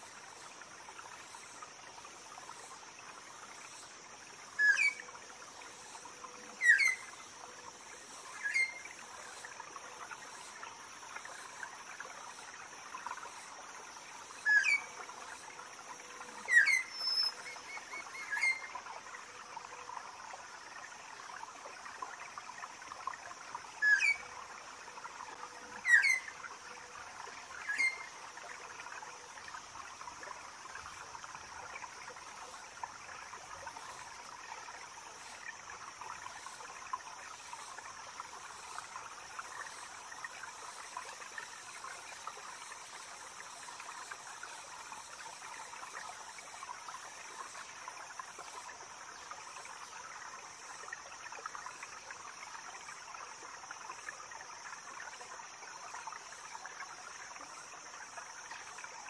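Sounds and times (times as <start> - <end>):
insects: 0.0 - 59.0
running water hiss: 0.0 - 59.0
bird chirping calls: 16.5 - 18.7.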